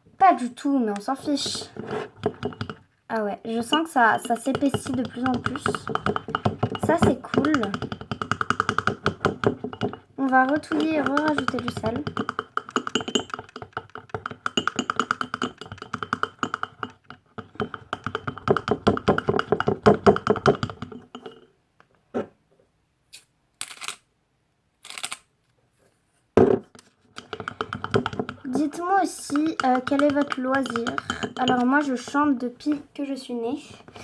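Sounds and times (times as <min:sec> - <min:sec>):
spoon stirring slime in bowl: 0:00.3 - 0:21.5, 0:27.0 - 0:33.0.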